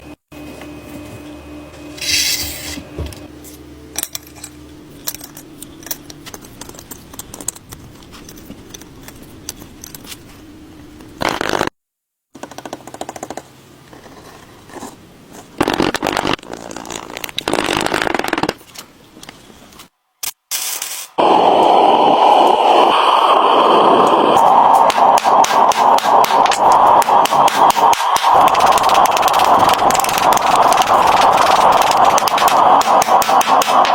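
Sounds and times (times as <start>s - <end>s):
harsh scraping noise: 1.9s - 2.9s
metal pieces clinking: 2.0s - 2.8s.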